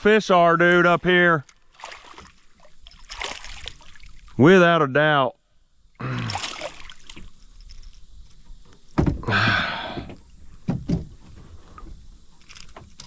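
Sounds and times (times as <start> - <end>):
rustling noise: 10.9 - 13.0.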